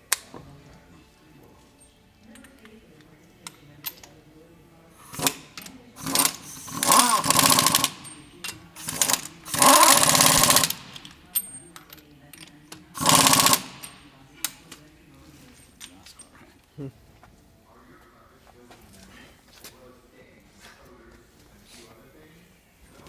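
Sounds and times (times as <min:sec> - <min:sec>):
pneumatic air tool hammering: 0:05.0 - 0:11.5, 0:12.9 - 0:14.0.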